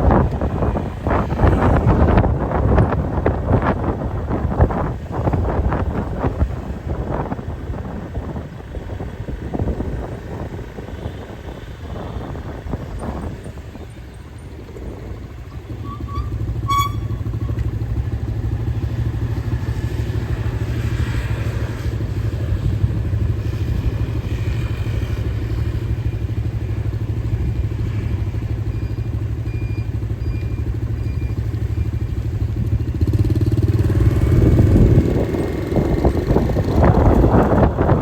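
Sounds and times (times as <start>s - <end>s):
motorcycle engine running: 0.0s - 38.0s
short high beeps: 16.0s - 17.6s.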